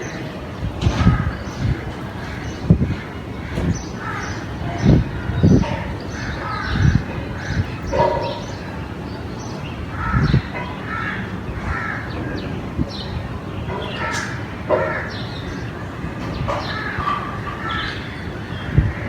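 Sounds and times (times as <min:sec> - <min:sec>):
crows cawing: 0:01.0 - 0:08.6, 0:09.9 - 0:12.5, 0:13.7 - 0:15.7, 0:16.3 - 0:19.0.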